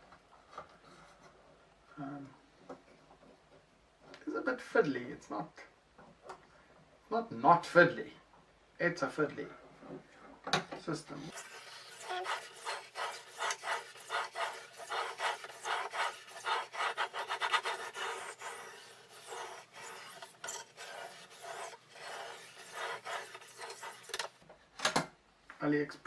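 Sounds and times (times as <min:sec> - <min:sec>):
sharpening stone rasping on knife: 0:11.3 - 0:24.3.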